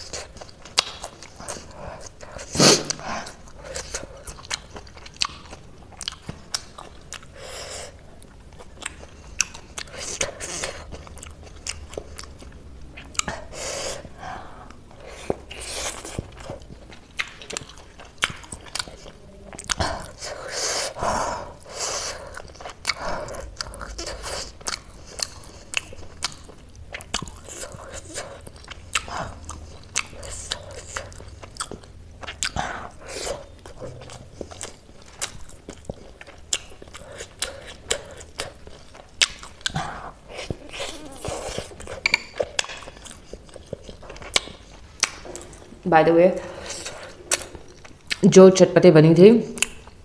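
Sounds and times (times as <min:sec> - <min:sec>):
biting dumplings: 0:14.8 - 0:45.8
chewing mouth clicks: 0:15.0 - 0:20.9, 0:21.7 - 0:45.7, 0:46.7 - 0:48.2, 0:49.6 - 0:50.0.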